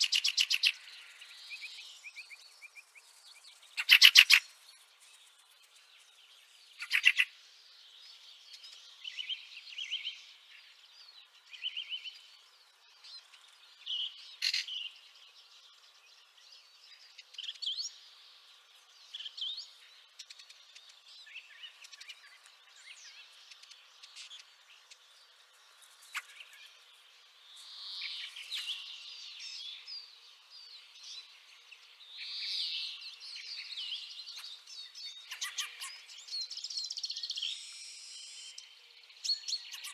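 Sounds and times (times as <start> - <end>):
birds chattering calls: 0.0 - 2.2, 3.6 - 4.6, 6.8 - 7.3, 34.2 - 38.6.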